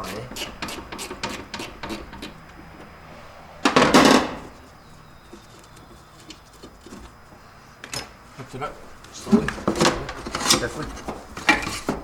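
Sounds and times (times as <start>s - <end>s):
faint workshop background: 0.0s - 3.0s, 3.7s - 12.0s
loud clatter of engine parts: 3.6s - 8.2s, 9.0s - 12.0s.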